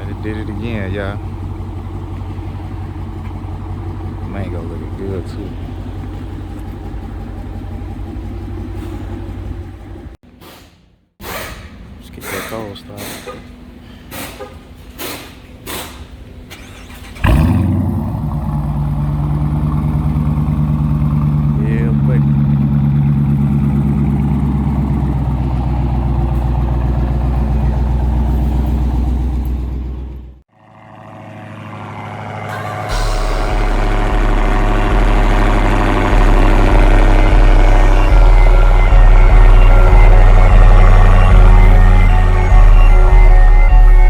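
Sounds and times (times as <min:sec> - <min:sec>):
car engine starting and idling: 0:00.0 - 0:10.6, 0:11.2 - 0:44.0.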